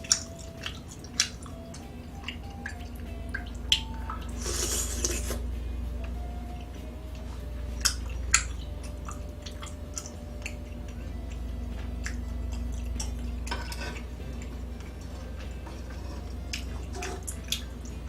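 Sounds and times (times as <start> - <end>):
person chewing: 0.0 - 5.5, 6.1 - 13.4
steady low hum: 0.0 - 18.0.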